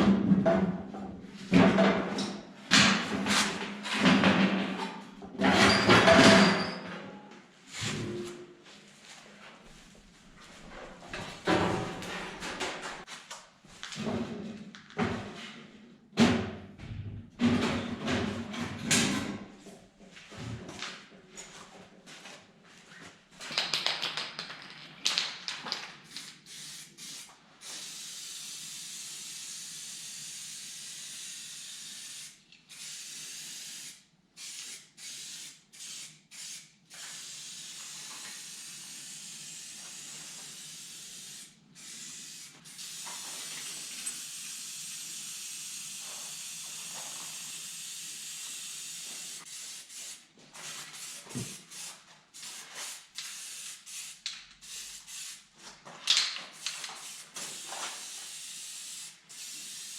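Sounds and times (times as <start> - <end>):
sharp knocks and clatter: 0.0 - 6.9, 11.3 - 13.1
aerosol can spraying: 26.1 - 55.4, 56.6 - 59.9.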